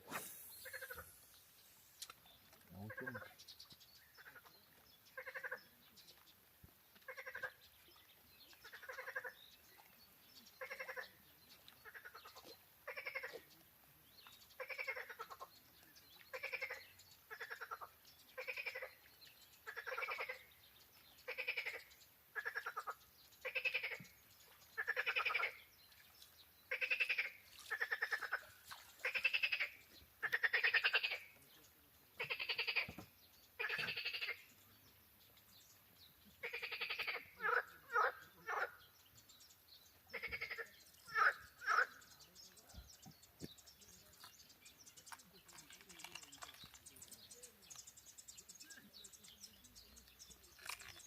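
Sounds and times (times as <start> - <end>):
frog croaking: 0.6 - 1.1, 2.7 - 3.4, 5.2 - 5.6, 10.6 - 11.1, 12.9 - 13.4, 19.7 - 20.5, 21.3 - 21.8, 22.4 - 24.0, 24.8 - 25.6, 26.7 - 28.4, 29.0 - 31.3, 32.2 - 33.0, 33.6 - 34.5, 36.4 - 38.8, 40.1 - 42.0.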